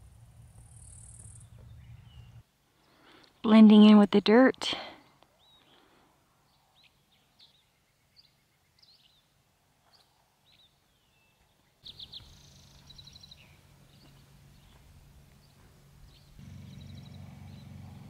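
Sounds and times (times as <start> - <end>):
bird chirps: 0.6 - 3.0, 5.3 - 18.0
low steady hum: 11.8 - 18.0.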